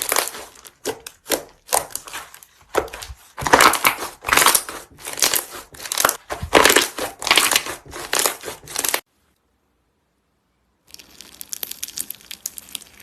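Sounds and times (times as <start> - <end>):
crunchy slime squeezed: 0.0 - 9.0.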